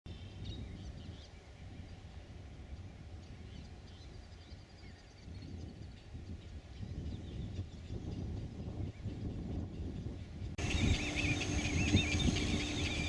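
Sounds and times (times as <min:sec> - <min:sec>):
small birds chirping: 0:02.7 - 0:13.0.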